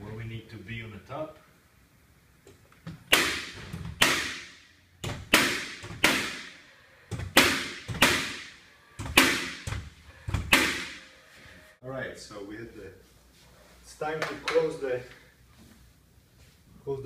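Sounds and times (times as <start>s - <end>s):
hammer striking nails: 3.1s - 6.5s, 7.1s - 11.0s.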